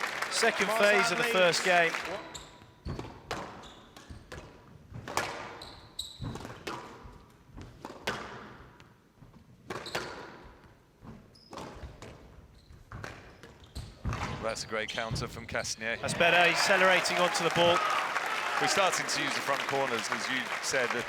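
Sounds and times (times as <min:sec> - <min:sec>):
shoe squeaks: 0:03.6 - 0:04.2, 0:05.6 - 0:06.4, 0:12.5 - 0:14.0.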